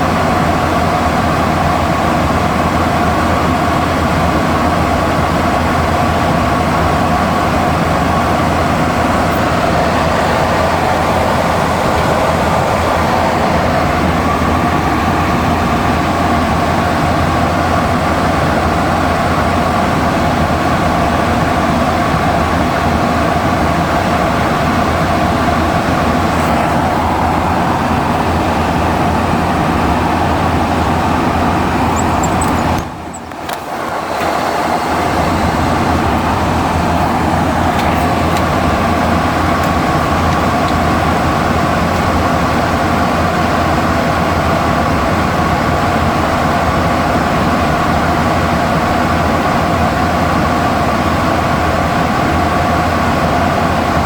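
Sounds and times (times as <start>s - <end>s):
cockpit air and machinery roar: 0.0s - 54.0s
low hum: 24.5s - 44.5s.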